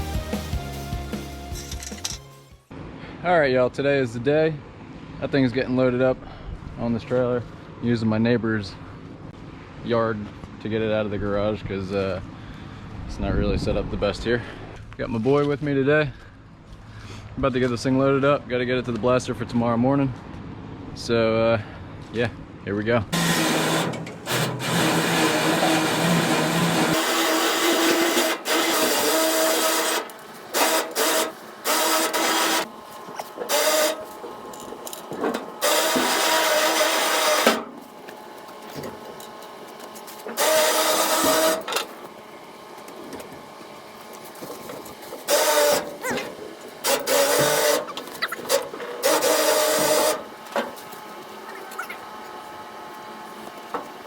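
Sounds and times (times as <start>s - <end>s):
electric winch motor whirring: 23.2s - 54.0s.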